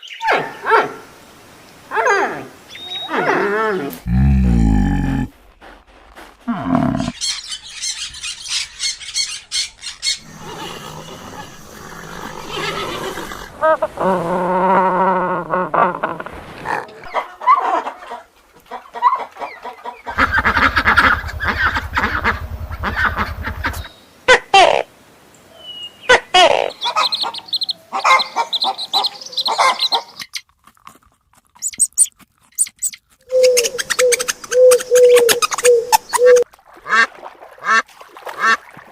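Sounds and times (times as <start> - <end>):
animal calls: 1.9 - 5.3, 6.5 - 14.2, 19.0 - 24.8, 31.6 - 36.4.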